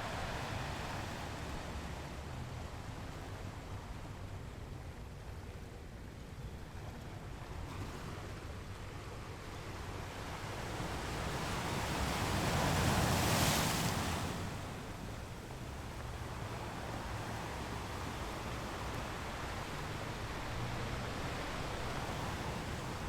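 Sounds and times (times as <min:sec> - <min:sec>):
ocean waves washing against rocks: 0:10.4 - 0:23.0.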